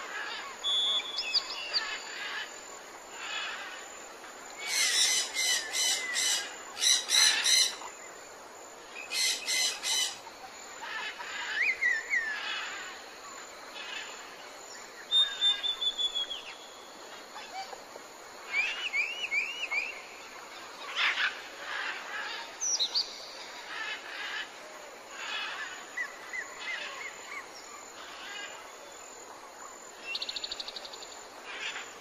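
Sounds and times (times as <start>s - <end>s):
background hiss: 0.0s - 32.0s
whistled bird notes: 0.6s - 2.0s, 15.1s - 16.6s, 18.5s - 20.1s
harsh repeated bird calls: 4.6s - 7.9s, 9.0s - 10.3s.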